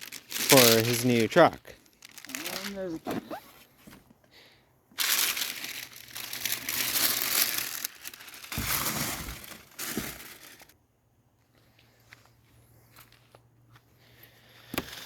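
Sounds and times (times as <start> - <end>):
packaging crinkling: 0.0 - 3.0, 5.0 - 10.7.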